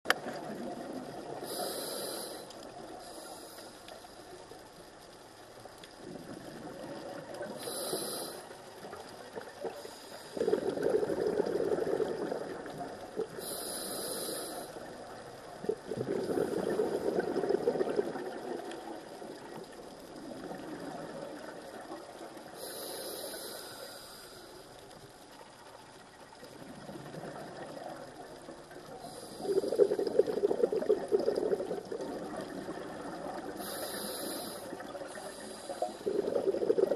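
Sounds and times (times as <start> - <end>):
hissing inhale through regulator: 1.2 - 4.4, 7.4 - 9.0, 9.7 - 15.2, 22.4 - 24.7, 28.8 - 32.5, 33.4 - 36.9
bubbling exhale underwater: 9.4 - 14.8, 15.5 - 23.7, 26.5 - 36.9.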